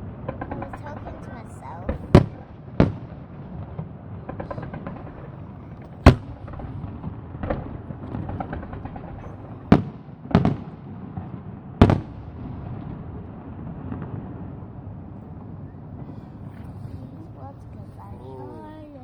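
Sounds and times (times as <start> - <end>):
crackle of small firework bursts: 0.0 - 18.0
firework shells bursting: 0.2 - 14.5.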